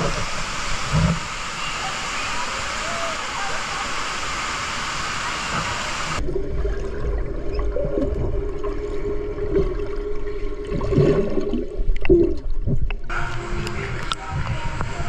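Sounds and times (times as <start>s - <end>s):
water gurgling: 0.0s - 15.0s
steady low hum: 12.6s - 15.0s.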